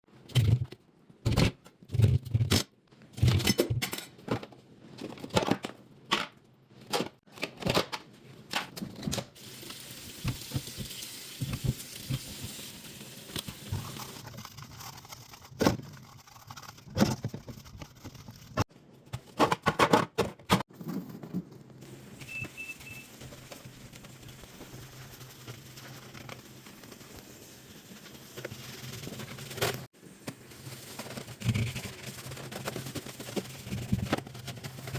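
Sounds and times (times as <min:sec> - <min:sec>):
knocks and clatters of items: 0:01.2 - 0:09.4, 0:16.9 - 0:22.5
short beeps: 0:22.2 - 0:23.1.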